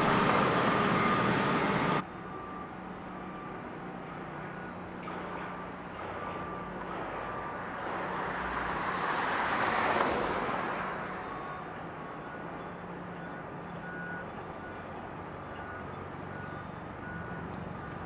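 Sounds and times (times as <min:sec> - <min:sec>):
reversing alarm beeping: 0:00.0 - 0:08.3, 0:10.2 - 0:18.0
engine hum: 0:00.0 - 0:18.0
vehicle passing: 0:07.0 - 0:11.7.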